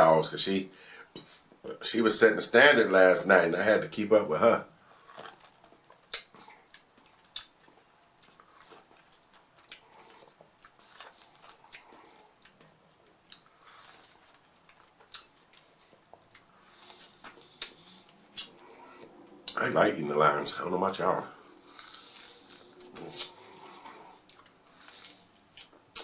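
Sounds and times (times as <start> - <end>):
chewing crunchy tacos: 4.8 - 19.6, 21.3 - 26.0
wet mouth sounds: 13.3 - 19.6, 21.4 - 26.0.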